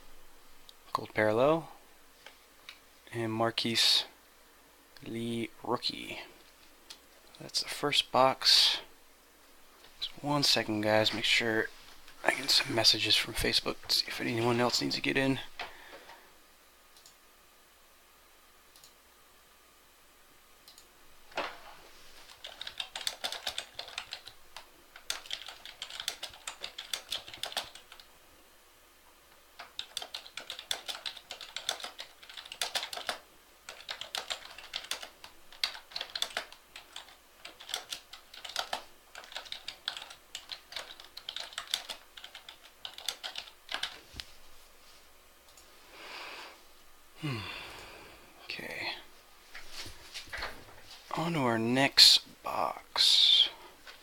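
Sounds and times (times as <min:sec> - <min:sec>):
typing on keyboard: 0:22.3 - 0:28.1, 0:29.6 - 0:44.0.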